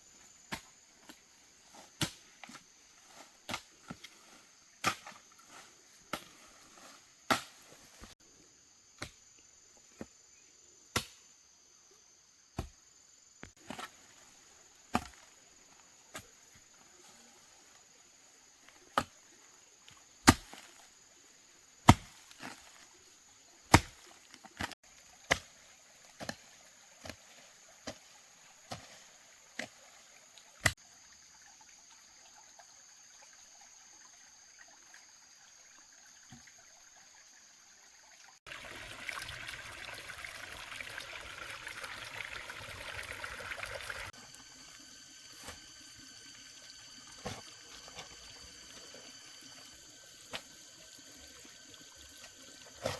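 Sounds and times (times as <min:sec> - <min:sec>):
water pouring or splashing: 0:38.2 - 0:52.9.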